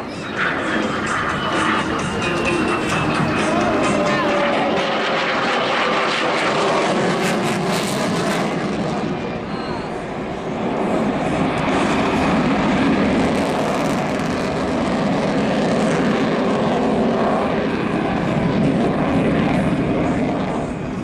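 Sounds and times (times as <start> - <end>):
propeller airplane engine: 0.0 - 21.0.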